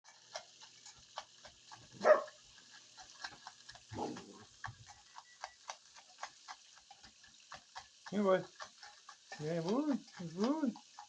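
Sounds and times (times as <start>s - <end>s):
puppy barking: 2.0s - 2.4s, 3.9s - 4.4s.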